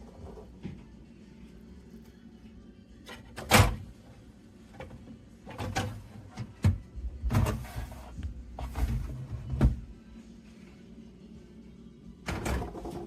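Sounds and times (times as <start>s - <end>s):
drawers sliding: 7.3s - 9.8s.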